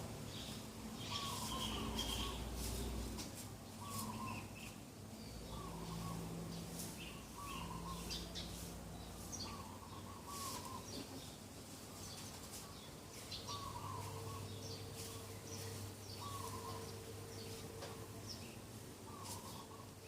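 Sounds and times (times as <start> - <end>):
birds chirping: 0.0 - 20.0
bird wavering call: 1.0 - 2.5, 3.8 - 4.6, 9.4 - 11.0, 16.2 - 17.0.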